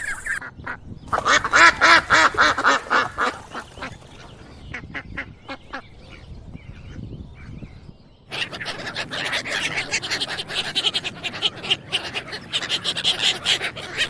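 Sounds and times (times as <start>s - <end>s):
duck quacking: 1.1s - 4.0s.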